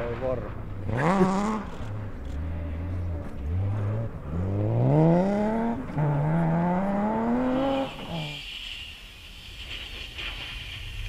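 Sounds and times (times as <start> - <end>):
car engine accelerating hard: 0.1 - 8.3.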